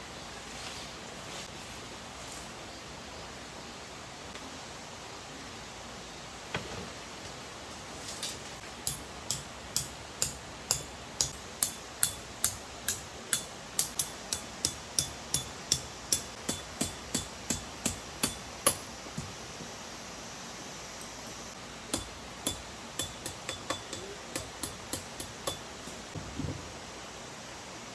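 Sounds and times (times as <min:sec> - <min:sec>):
hammer striking metal tent peg: 0:08.8 - 0:18.9, 0:21.9 - 0:25.7.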